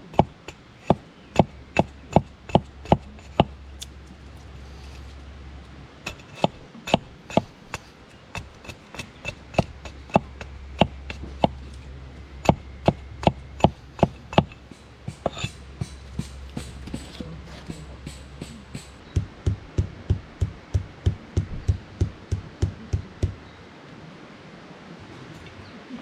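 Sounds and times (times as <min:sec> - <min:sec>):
tool chopping wood: 0:00.1 - 0:03.6, 0:06.1 - 0:11.8, 0:12.4 - 0:23.4.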